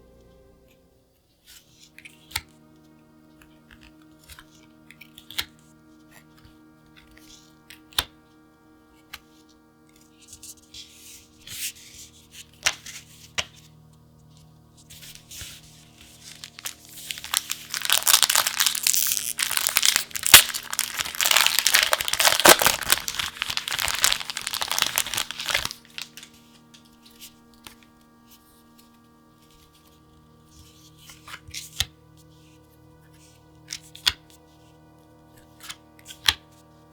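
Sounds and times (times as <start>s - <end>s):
soft background music: 0.0s - 36.9s
plastic packaging crinkling: 16.0s - 26.7s.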